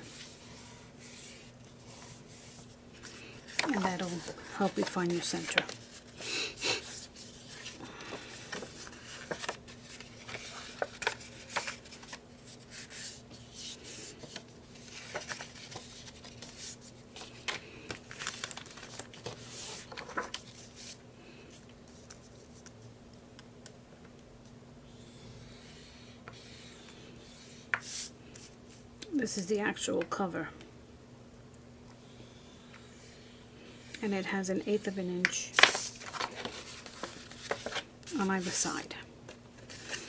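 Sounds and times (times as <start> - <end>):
paper rustling and crinkling: 0.0 - 21.0, 35.5 - 38.7, 39.3 - 40.0.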